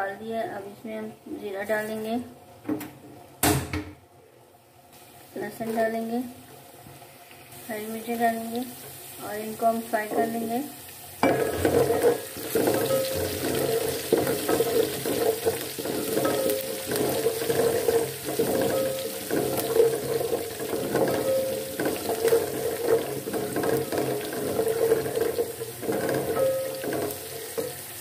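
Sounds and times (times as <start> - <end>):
food sizzling in hot oil: 4.9 - 28.0
wooden spoon scraping a pot: 11.3 - 28.0.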